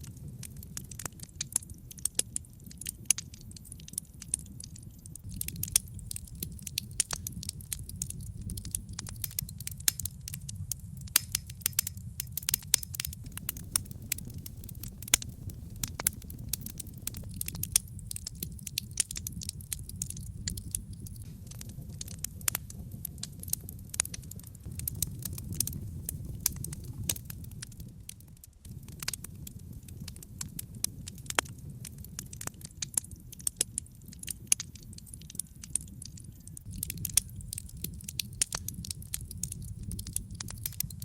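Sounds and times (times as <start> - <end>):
logs crackling and popping: 0.0 - 41.0
low rumble of flames: 0.0 - 41.0.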